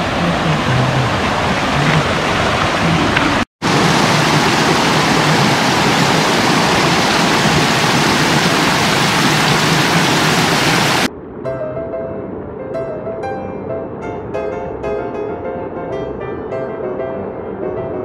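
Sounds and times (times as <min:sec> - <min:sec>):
stream rushing over rocks: 0:00.0 - 0:11.1.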